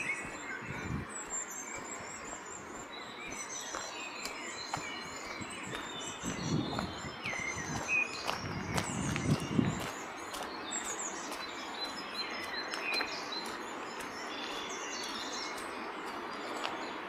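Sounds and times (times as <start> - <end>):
small birds chirping and singing: 0.0 - 17.0.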